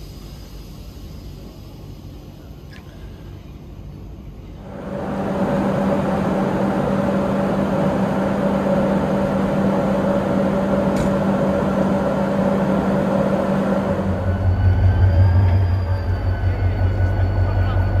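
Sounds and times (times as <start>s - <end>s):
train mechanical hum: 0.0s - 18.0s
click: 10.9s - 11.2s.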